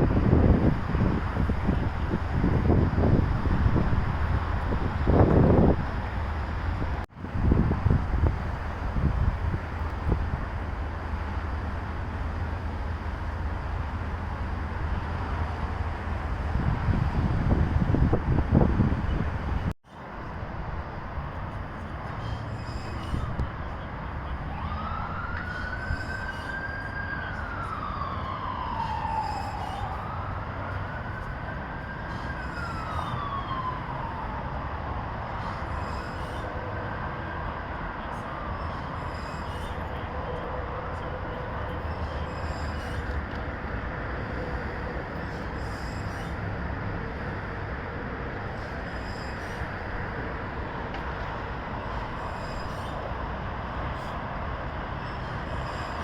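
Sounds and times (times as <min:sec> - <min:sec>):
traffic noise: 0:00.0 - 0:56.0
emergency siren wailing: 0:24.2 - 0:43.2.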